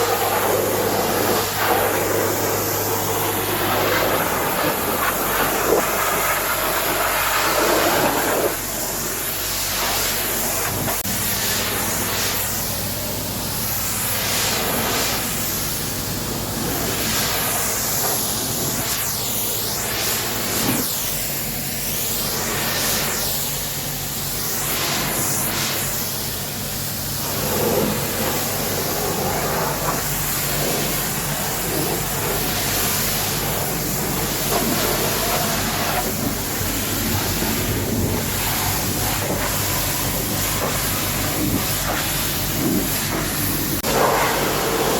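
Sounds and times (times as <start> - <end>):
pressure washer spray hissing: 0.0 - 44.9
pump humming: 26.0 - 44.9.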